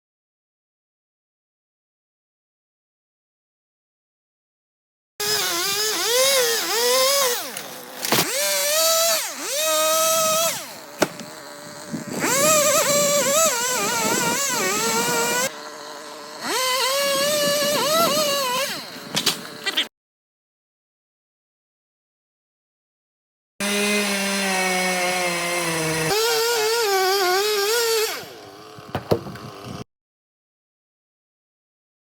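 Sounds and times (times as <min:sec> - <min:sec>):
chainsaw cutting at high revs: 0:05.2 - 0:19.8, 0:23.6 - 0:29.9.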